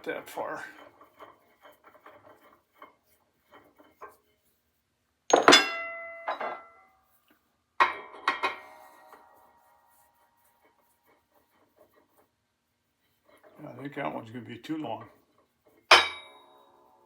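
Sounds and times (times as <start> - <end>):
sharp metallic clanks: 5.3 - 6.7, 15.9 - 16.5.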